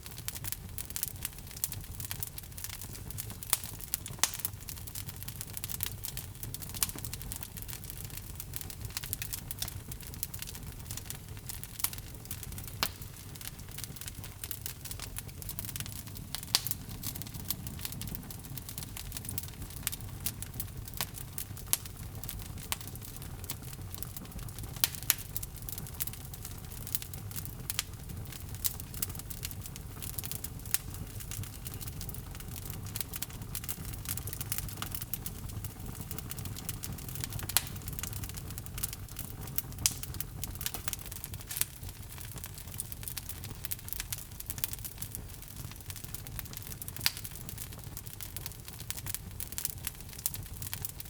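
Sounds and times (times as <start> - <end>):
log fire crackling: 0.0 - 51.0.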